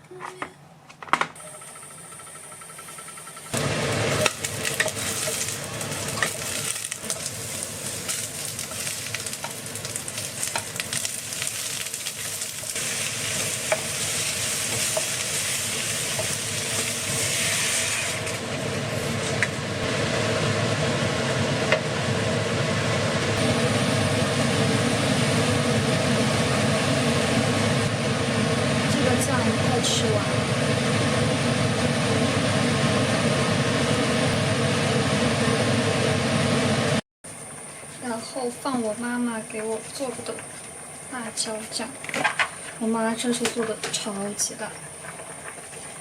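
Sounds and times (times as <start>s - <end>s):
food sizzling in a pan: 3.6s - 20.8s.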